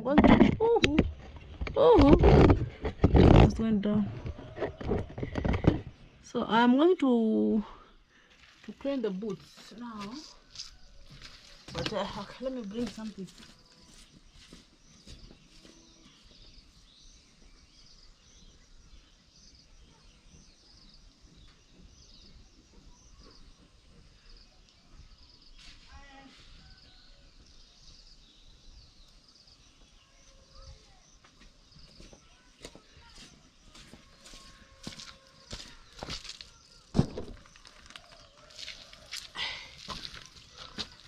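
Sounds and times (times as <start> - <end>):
bird chirping: 8.8 - 41.0.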